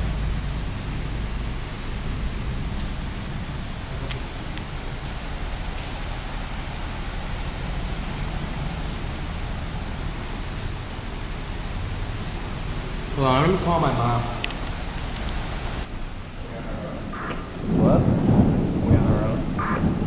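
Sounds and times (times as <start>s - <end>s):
heavy rain pouring: 0.0s - 20.0s
low thunder rumble: 15.8s - 20.0s.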